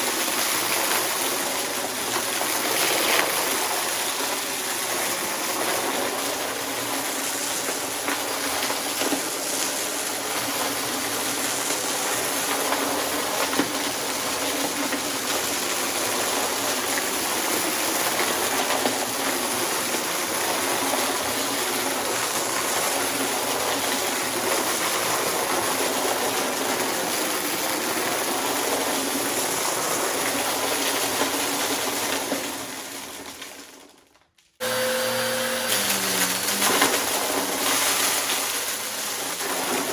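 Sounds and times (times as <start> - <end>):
vacuum cleaner running: 34.6 - 39.9.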